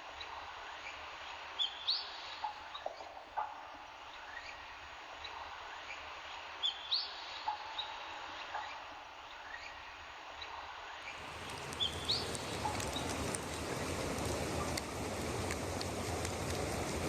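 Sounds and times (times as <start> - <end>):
small birds chirping: 11.1 - 17.0
rain hissing: 11.2 - 17.0
raindrop ticks: 11.2 - 17.0.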